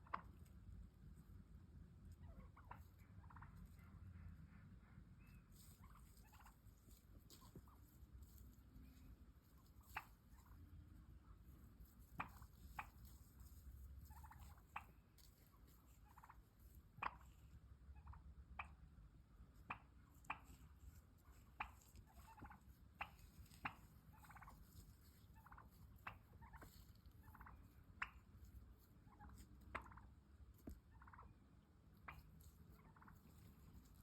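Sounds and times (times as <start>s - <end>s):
turkey clucking: 0.0s - 1.1s, 1.8s - 34.0s
turkey purring: 2.1s - 4.5s, 5.2s - 7.8s, 14.1s - 18.8s, 19.6s - 31.4s, 32.0s - 34.0s.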